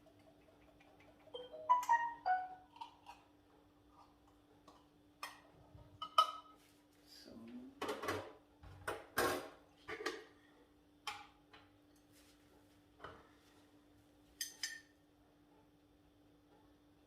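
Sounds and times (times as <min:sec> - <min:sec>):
spoon jars and dishes clinking: 0:14.4 - 0:15.0.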